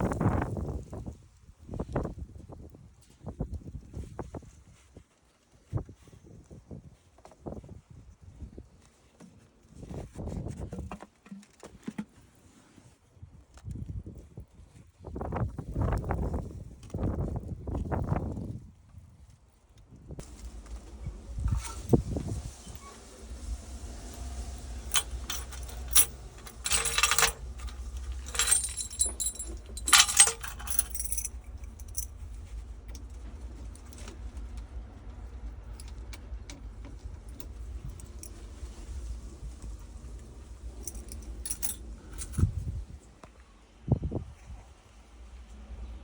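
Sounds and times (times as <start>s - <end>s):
steady low rumble: 20.2s - 43.0s
metal rattling and scraping: 22.8s - 42.5s
metal clinking and jangling: 23.2s - 34.2s, 40.1s - 42.6s.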